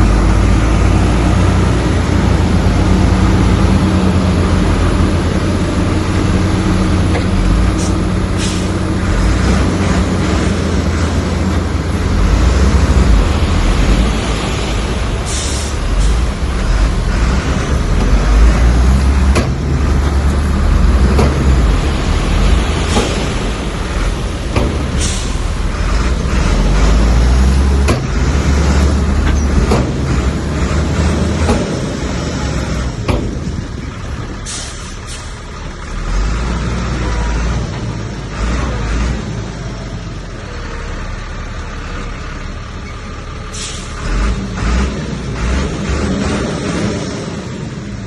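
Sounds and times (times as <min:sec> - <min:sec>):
heavy machinery rumbling: 0:00.0 - 0:48.0
short hisses: 0:34.5 - 0:35.4, 0:43.5 - 0:44.0.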